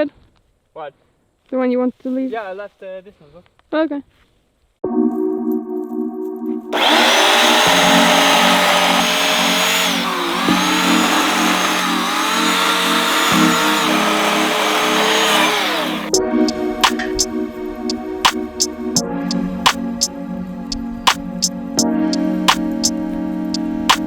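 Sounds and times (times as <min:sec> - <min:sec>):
rotary tool cutting wood: 0:06.8 - 0:16.1.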